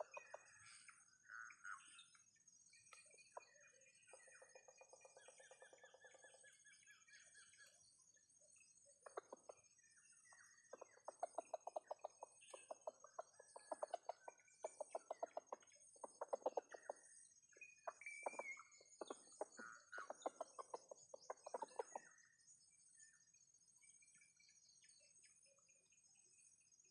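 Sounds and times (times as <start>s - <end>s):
chicken chirp: 0.0s - 0.8s, 9.0s - 9.6s, 10.6s - 17.0s, 17.7s - 22.2s
chickens clucking: 9.0s - 9.6s, 10.7s - 17.1s, 17.9s - 22.0s.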